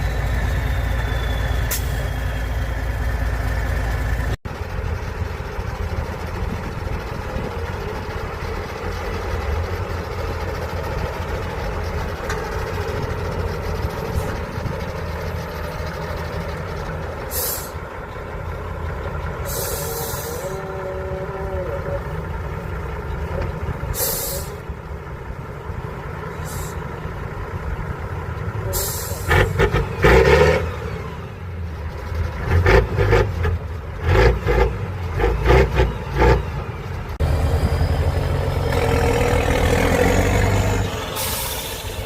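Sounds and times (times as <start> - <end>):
diesel truck engine: 0.0 - 42.0
air brake hiss: 1.6 - 2.2, 17.3 - 17.8, 19.5 - 20.5, 24.0 - 24.6, 26.4 - 26.8, 28.7 - 29.3, 41.0 - 42.0.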